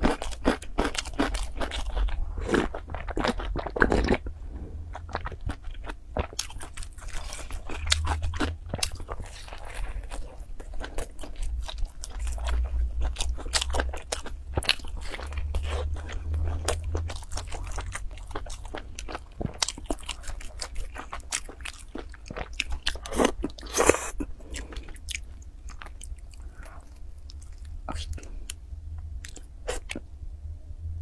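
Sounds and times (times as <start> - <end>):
crunchy chewing: 0.0 - 4.3, 4.9 - 28.6.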